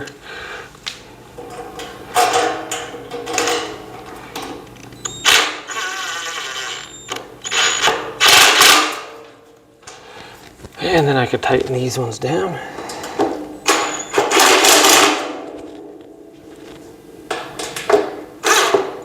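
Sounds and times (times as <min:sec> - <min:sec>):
power drill driving screws: 0:05.0 - 0:08.9.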